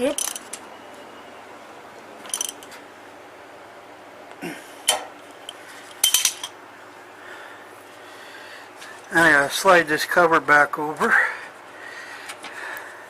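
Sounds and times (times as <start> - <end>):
metal tools clinking: 0.0 - 0.6, 2.2 - 2.8, 4.9 - 6.6.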